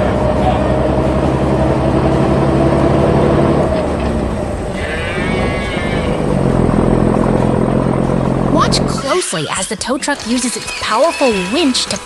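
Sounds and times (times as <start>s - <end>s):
truck engine running: 0.0s - 10.8s.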